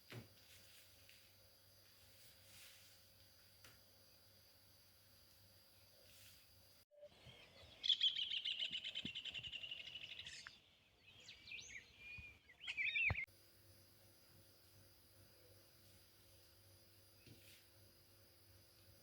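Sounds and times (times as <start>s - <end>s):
songbird trilling and chirping: 7.2s - 13.3s.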